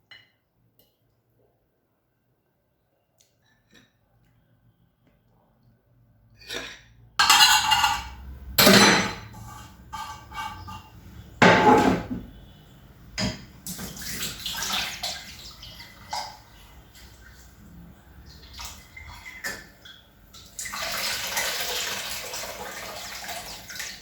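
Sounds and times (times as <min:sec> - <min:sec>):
kitchenware clicks: 0:07.2 - 0:09.4
water pouring and splashing: 0:13.6 - 0:24.0.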